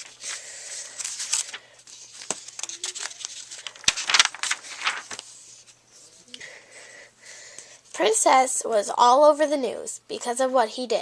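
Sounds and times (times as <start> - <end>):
paper pages rustling: 0.0 - 6.2.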